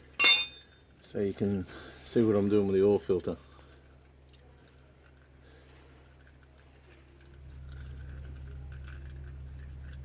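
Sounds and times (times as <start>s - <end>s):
oil dripping into container: 3.0s - 10.0s.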